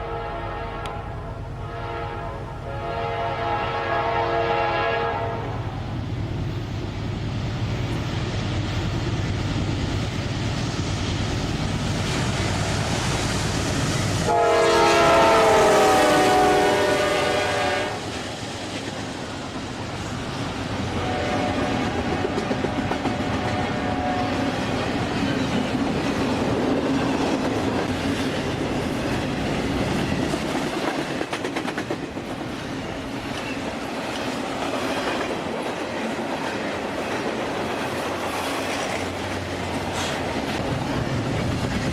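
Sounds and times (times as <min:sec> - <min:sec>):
locomotive air horn: 0:00.0 - 0:05.7, 0:14.2 - 0:18.1, 0:20.9 - 0:24.6
train engine rumble: 0:00.0 - 0:41.9
train wheels clicking on rails: 0:05.9 - 0:41.9.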